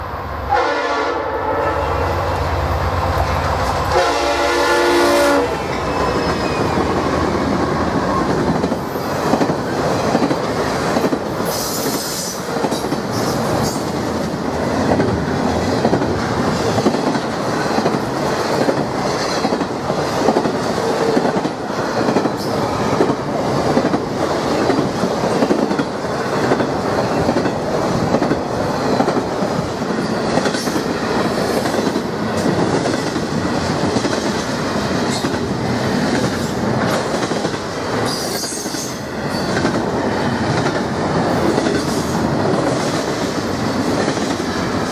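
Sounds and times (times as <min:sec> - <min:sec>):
train horn blasts: 0:00.5 - 0:02.4, 0:03.8 - 0:06.3
train cars rolling and clacking: 0:02.0 - 0:44.9.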